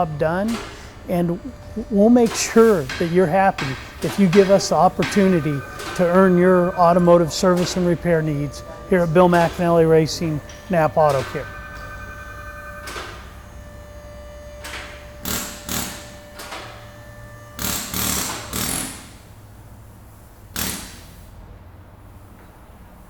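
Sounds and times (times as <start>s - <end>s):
steady low hum: 0.0s - 18.2s
sharp bursts of machinery noise: 0.0s - 21.3s.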